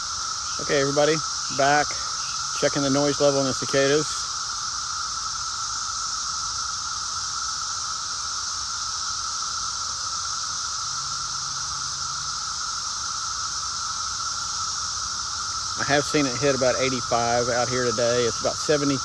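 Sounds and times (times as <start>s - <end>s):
cicadas droning: 0.0s - 19.0s.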